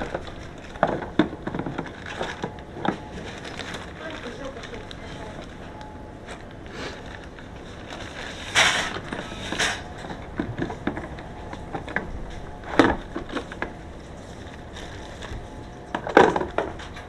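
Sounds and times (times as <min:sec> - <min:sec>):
scraping or rustling: 0:06.8 - 0:17.0.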